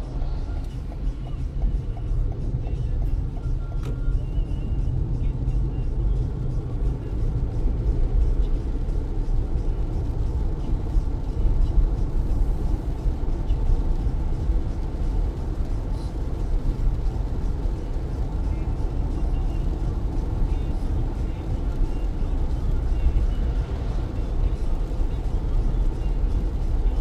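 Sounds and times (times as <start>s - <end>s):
tyres rumbling on wet road: 0.0s - 27.0s
rain hissing: 11.9s - 27.0s.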